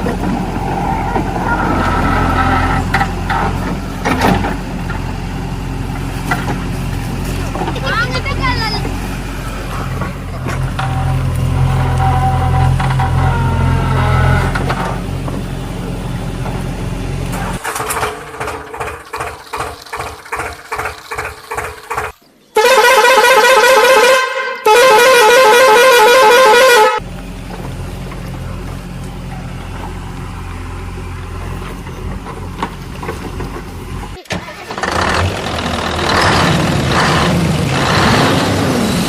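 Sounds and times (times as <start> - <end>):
engine running: 0.0 - 39.0
vehicle horn blasts: 22.6 - 27.0.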